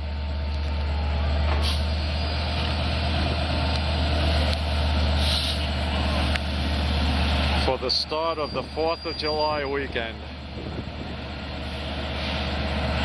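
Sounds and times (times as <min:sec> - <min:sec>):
diesel train idling hum: 0:00.0 - 0:13.0
air release hisses: 0:05.2 - 0:05.7.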